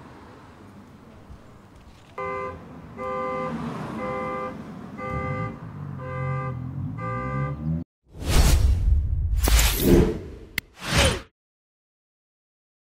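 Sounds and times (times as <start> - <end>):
car alarm horn honking: 2.2 - 7.8.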